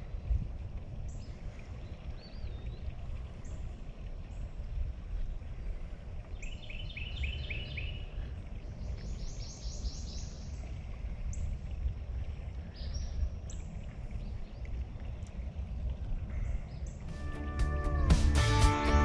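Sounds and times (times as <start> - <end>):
songbird chirping: 6.3 - 10.8, 16.6 - 19.0
low rumble: 13.2 - 19.0.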